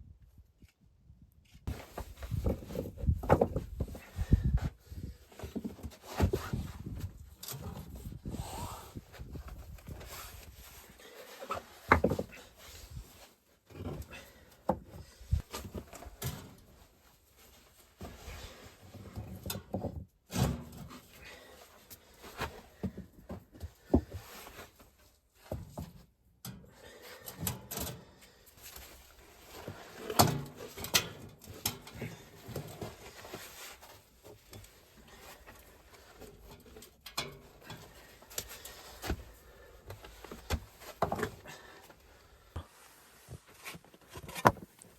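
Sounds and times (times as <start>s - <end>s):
objects knocking and rustling: 1.7s - 4.4s, 11.6s - 12.4s.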